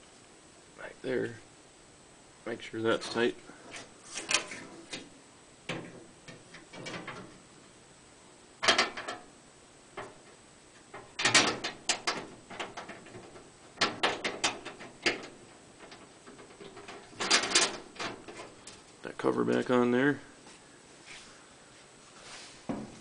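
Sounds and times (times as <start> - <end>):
metal clunks scrapes and rattles: 3.0 - 5.1, 10.0 - 19.8.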